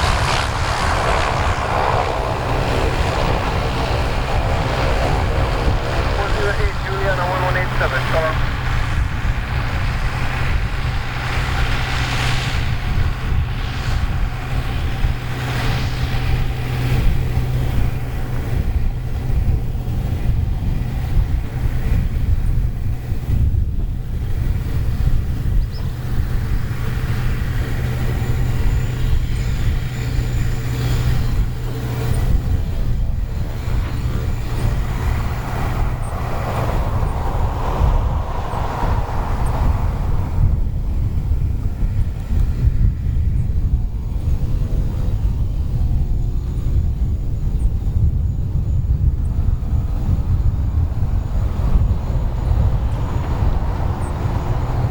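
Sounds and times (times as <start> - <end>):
turboprop aircraft engine drone: 0.0 - 54.9.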